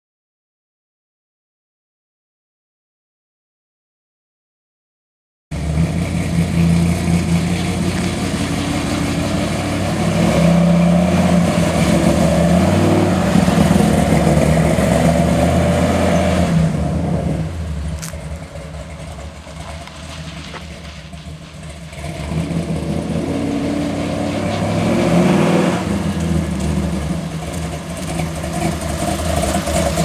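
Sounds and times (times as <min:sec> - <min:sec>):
vee eight engine running: 0:05.6 - 0:30.0.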